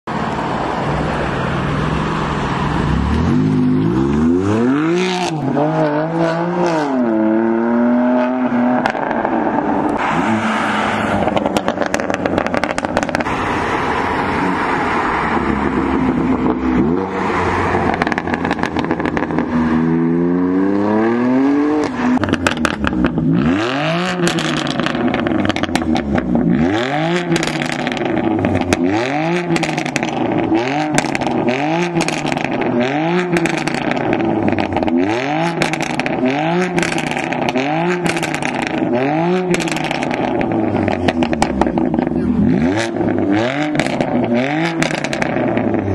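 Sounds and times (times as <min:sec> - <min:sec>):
car engine revving: 0:00.5 - 0:45.9
exhaust crackling pops: 0:35.6 - 0:38.9.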